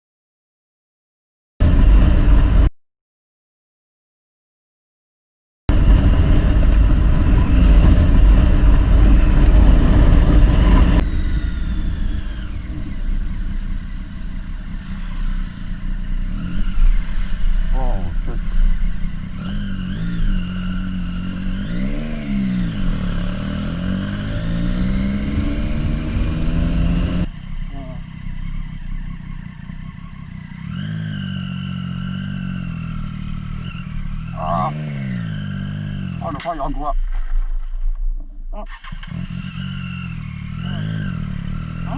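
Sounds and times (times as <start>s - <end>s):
low rumbling noise: 1.6s - 2.7s, 5.7s - 29.9s
motorcycle riding: 1.6s - 2.7s, 5.7s - 41.9s
wind rushing on microphone: 5.7s - 14.0s
loud wind rush: 5.7s - 27.3s.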